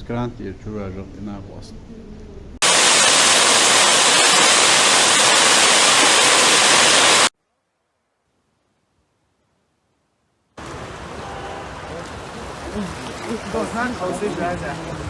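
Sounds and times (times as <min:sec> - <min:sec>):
heavy rain hissing: 0:02.6 - 0:07.3, 0:10.6 - 0:15.0.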